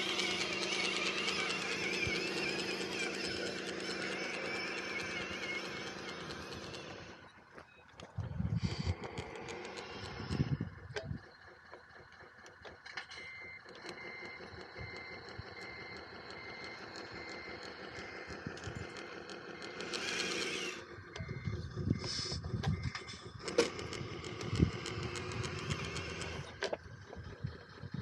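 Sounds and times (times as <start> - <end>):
model machinery whine and clatter: 0.0 - 28.0
reversing alarm beeps: 13.0 - 24.8.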